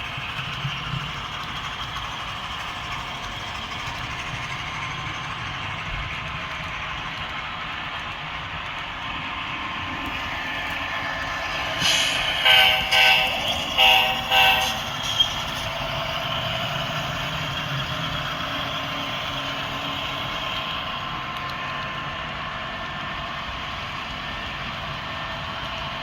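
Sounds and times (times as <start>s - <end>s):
train horn blast: 12.3s - 15.1s.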